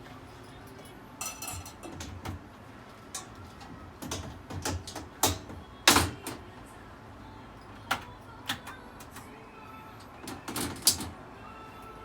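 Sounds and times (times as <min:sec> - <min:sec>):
range hood parts clicking and knocking: 0:01.3 - 0:02.5, 0:03.1 - 0:06.4.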